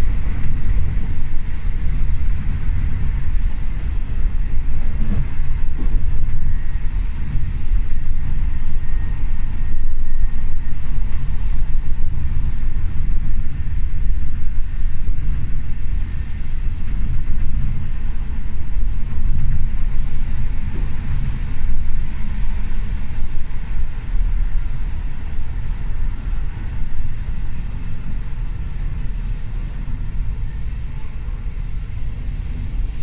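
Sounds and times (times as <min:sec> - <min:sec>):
high hiss: 0:00.0 - 0:04.0, 0:09.8 - 0:13.3, 0:18.7 - 0:33.0
train wheels rumbling: 0:00.0 - 0:33.0.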